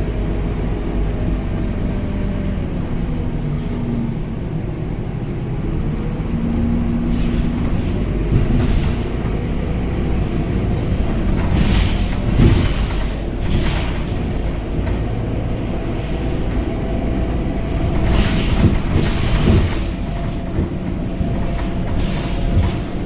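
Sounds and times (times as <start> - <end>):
bus engine and road rumble: 0.0 - 23.0
rattles and knocks: 7.0 - 23.0.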